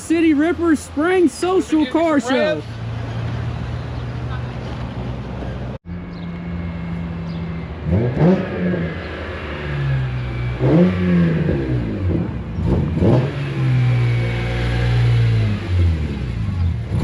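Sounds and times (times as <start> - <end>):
car engines running: 0.0 - 17.0
engine revving: 6.1 - 17.0.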